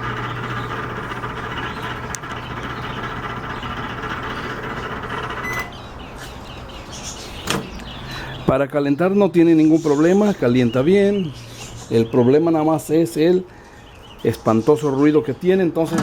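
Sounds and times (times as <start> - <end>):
loud grinding turntable noise: 0.0 - 5.8
microwave oven hum: 0.0 - 5.9.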